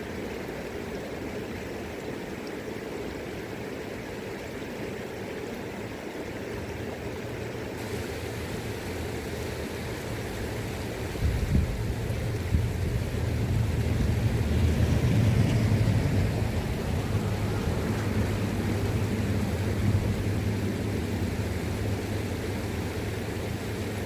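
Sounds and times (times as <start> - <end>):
river water flowing: 0.0 - 24.0
wind buffeting microphone: 10.1 - 22.4.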